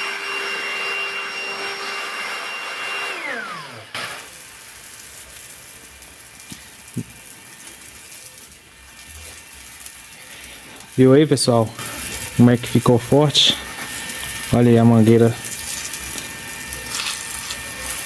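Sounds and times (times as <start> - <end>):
pressure washer motor whining: 0.0 - 18.0
steady hiss: 4.0 - 18.0.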